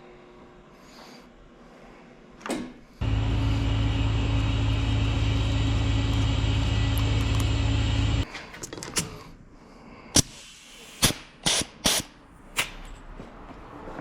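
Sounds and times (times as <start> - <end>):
short falling whine: 3.0 - 8.2
motor low hum: 3.0 - 8.3.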